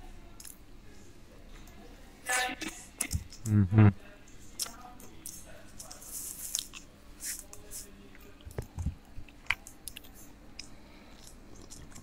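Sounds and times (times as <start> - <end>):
man chewing a burger: 8.4 - 12.0.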